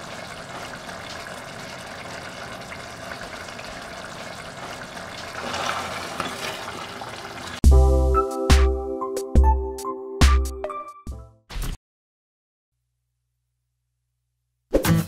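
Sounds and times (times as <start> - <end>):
gravy simmering and bubbling: 0.0 - 7.6
music: 7.6 - 11.8, 14.7 - 15.0.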